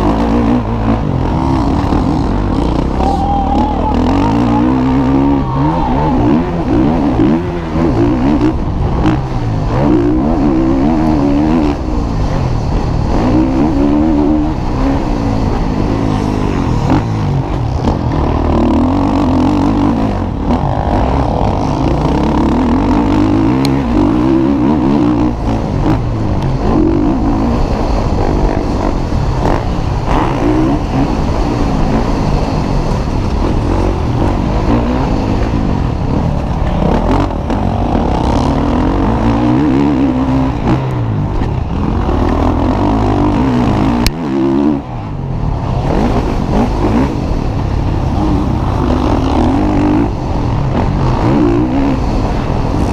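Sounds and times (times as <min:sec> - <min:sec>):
motocross bike engines revving: 0:00.0 - 0:52.9.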